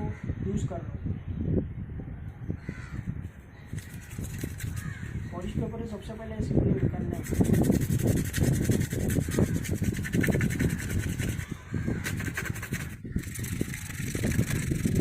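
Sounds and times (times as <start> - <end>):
sandpaper scraping plastic helmet: 3.8 - 5.0, 7.2 - 15.0.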